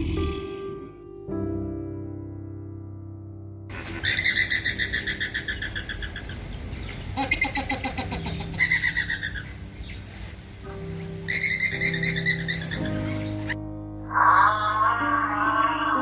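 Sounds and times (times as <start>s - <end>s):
animal calling in pulsed trills: 7.2s - 9.5s, 11.3s - 13.1s.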